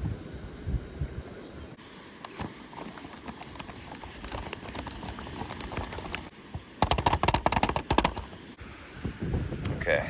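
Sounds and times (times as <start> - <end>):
handling rustle: 2.2 - 8.5
foil pouch crinkling: 2.3 - 8.4.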